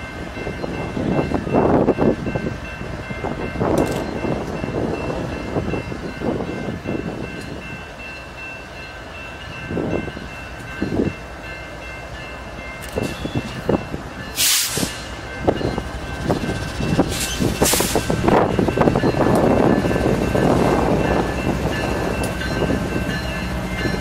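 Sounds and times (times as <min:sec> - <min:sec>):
diesel locomotive engine rumble: 0:00.0 - 0:24.0
hiss bursts: 0:14.4 - 0:15.2, 0:17.0 - 0:18.2.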